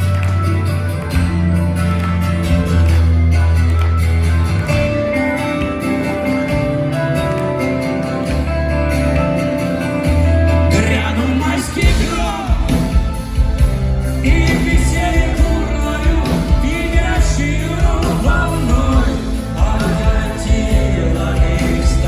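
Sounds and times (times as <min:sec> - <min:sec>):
rock band playing live: 0:00.0 - 0:22.0
drum beat: 0:11.8 - 0:22.0.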